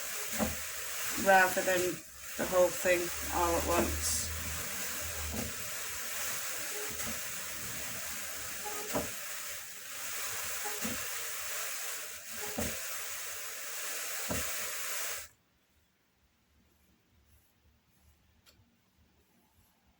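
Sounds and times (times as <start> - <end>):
drum carder hissing: 0.0 - 15.3.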